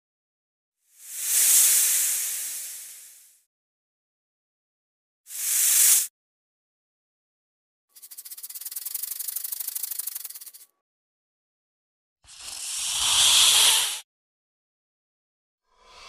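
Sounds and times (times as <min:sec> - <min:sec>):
snake hiss: 0:00.9 - 0:03.4, 0:05.3 - 0:06.1, 0:08.0 - 0:10.6, 0:12.3 - 0:14.1
snake rattle: 0:07.9 - 0:10.7, 0:12.3 - 0:14.0.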